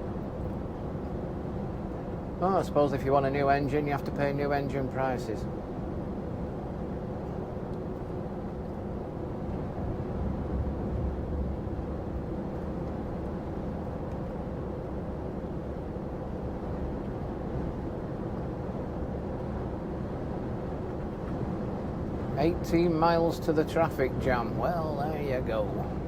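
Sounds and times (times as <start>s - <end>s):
lorry engine and road rumble: 10.4s - 26.0s.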